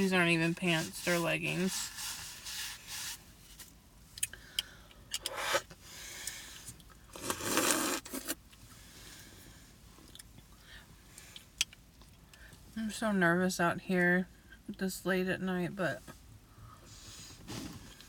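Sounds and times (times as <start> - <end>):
soft rustles: 16.9 - 18.0.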